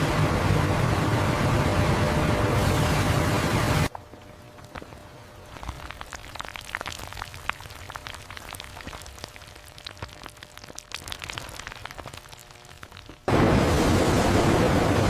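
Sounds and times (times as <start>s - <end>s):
dense crackling clicks: 3.9s - 13.3s.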